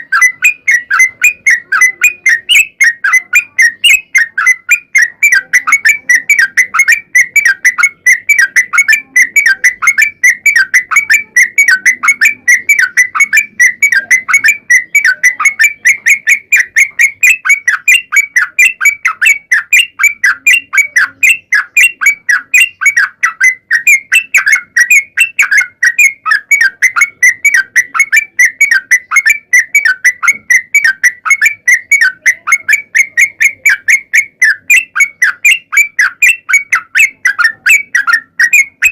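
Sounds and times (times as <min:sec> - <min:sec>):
bulbul singing rapid notes: 0:00.0 - 0:38.9.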